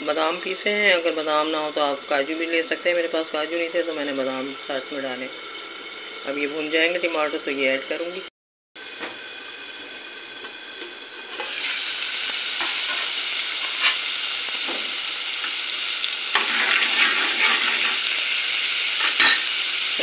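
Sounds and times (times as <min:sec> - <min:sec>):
food sizzling in oil: 0:00.0 - 0:20.0
metal spoon scraping pot: 0:16.4 - 0:18.1.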